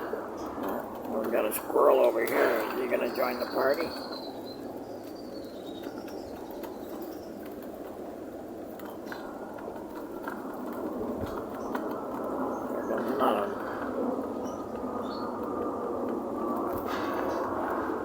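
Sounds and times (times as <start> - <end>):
pigeons cooing: 9.0 - 18.0.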